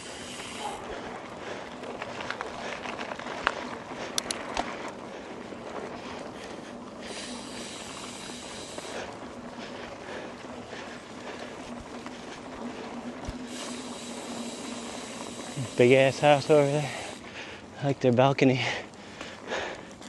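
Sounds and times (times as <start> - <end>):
bike tyres rolling on dirt: 0.0 - 20.0
high hiss: 13.5 - 17.2.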